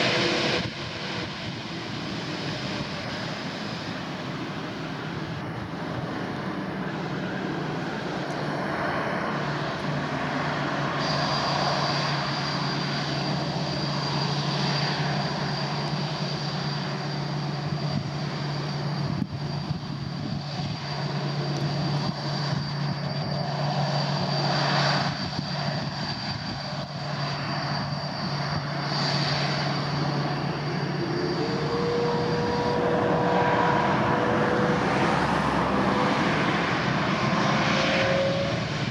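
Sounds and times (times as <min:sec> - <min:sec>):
jet engines running: 0:00.0 - 0:38.9
rising higher tone: 0:29.6 - 0:38.9.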